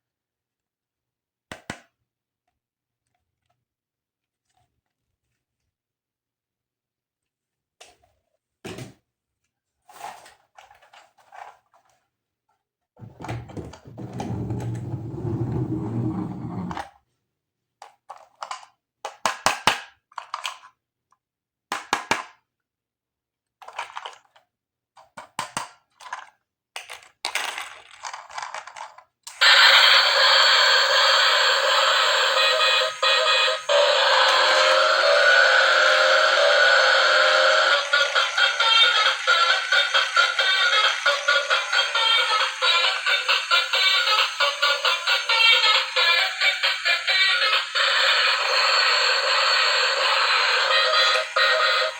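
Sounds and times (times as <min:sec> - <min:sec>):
plastic toy pieces clicking: 0:17.8 - 0:20.7, 0:23.6 - 0:24.4, 0:25.0 - 0:29.1
toy playing electronic music: 0:29.4 - 0:51.9.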